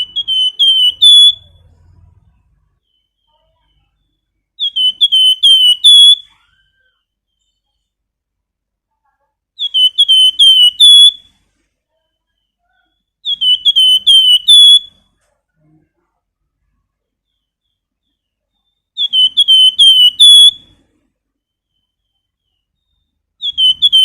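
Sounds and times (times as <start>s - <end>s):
bird whistling call: 0.0s - 1.8s, 4.6s - 7.8s, 9.6s - 11.3s, 12.8s - 15.0s, 17.3s - 20.7s, 21.5s - 24.0s.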